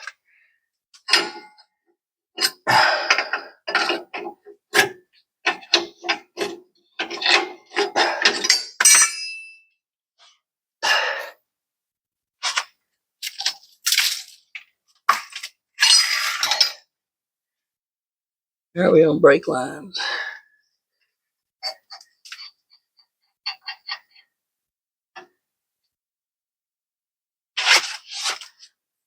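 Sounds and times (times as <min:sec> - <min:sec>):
metal parts clanking: 0:01.1 - 0:01.6, 0:05.5 - 0:09.5
ringing metallic clink: 0:08.5 - 0:09.6.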